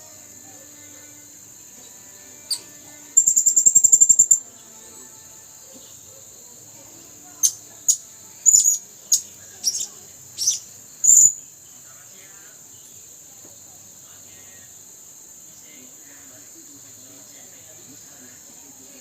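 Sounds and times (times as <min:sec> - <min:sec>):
high-pitched insect drone: 0:00.0 - 0:19.0
parrot calling and trilling: 0:07.4 - 0:11.4.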